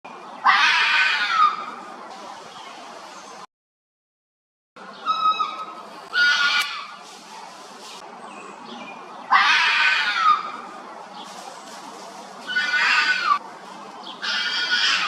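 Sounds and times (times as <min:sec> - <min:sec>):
harsh high-pitched animal screams: 0:00.5 - 0:01.6, 0:05.0 - 0:06.9, 0:09.3 - 0:10.5, 0:12.5 - 0:13.4, 0:14.2 - 0:15.0.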